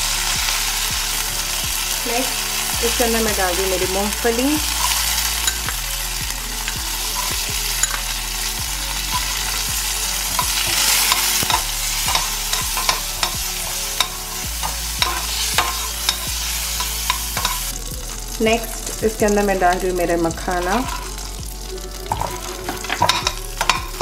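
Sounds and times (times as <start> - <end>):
peanuts sizzling in oil: 0.0 - 24.0
steel spoon scraping a pot: 3.0 - 17.8, 20.5 - 21.3, 22.0 - 24.0.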